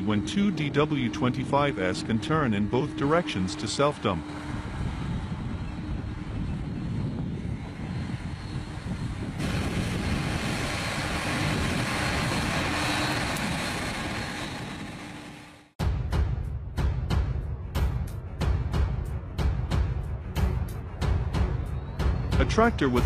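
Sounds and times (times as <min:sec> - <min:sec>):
tractor engine running: 0:09.4 - 0:15.7.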